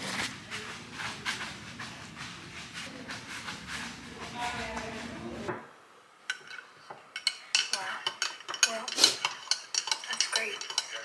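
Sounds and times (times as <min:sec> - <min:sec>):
clinks of cutlery or dishes: 0:06.3 - 0:11.0.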